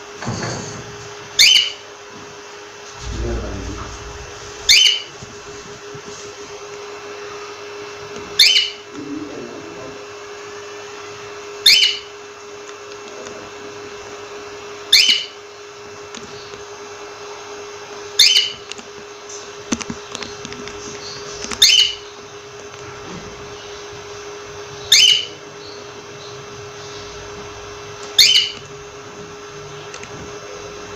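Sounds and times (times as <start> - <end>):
cockatiel calling: 1.4 - 1.8, 4.6 - 5.1, 8.4 - 8.8, 11.6 - 12.1, 14.9 - 15.4, 18.2 - 18.6, 21.6 - 22.1, 24.8 - 25.8, 28.1 - 28.6
low hum: 2.9 - 5.8.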